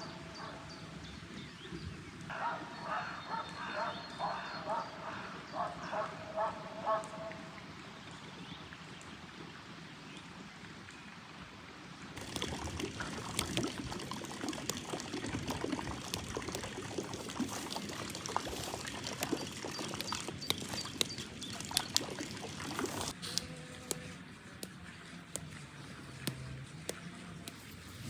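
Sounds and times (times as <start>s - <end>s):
water drips: 12.2s - 28.0s
water pouring and splashing: 12.2s - 28.0s.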